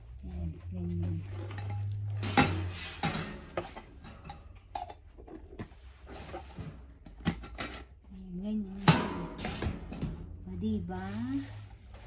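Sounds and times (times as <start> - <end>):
metal parts clattering and clinking: 1.3 - 5.6.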